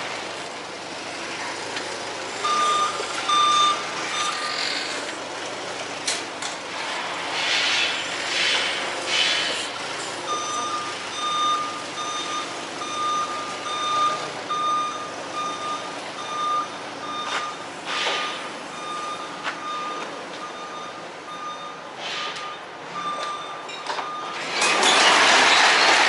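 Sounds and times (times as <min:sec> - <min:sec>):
engine running: 0:00.0 - 0:26.0
truck backup alarm beeping: 0:02.3 - 0:04.5, 0:10.2 - 0:24.6.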